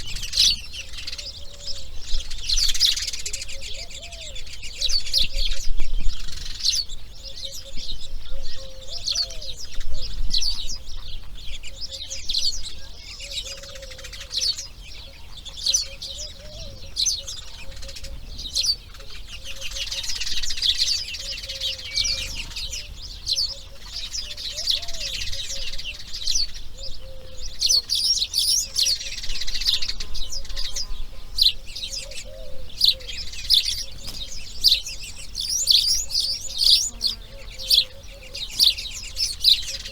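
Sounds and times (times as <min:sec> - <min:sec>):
songbirds chirping: 0:00.0 - 0:39.9
lower wavering bird call: 0:21.0 - 0:34.0.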